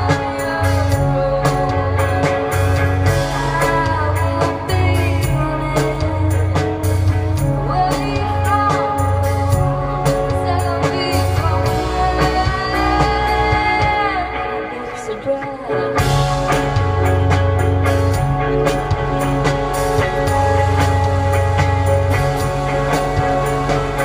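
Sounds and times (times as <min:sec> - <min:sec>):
pulsing bass line: 0:00.0 - 0:15.1, 0:15.9 - 0:24.0
woman singing: 0:00.0 - 0:16.9
drums: 0:00.0 - 0:24.0
guitar: 0:00.0 - 0:24.0.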